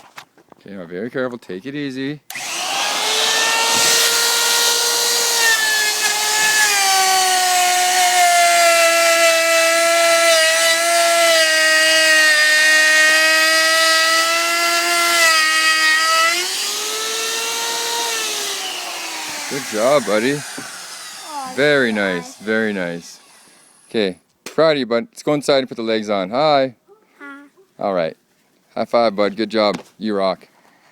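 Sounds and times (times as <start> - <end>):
wood router whining: 2.3 - 24.0.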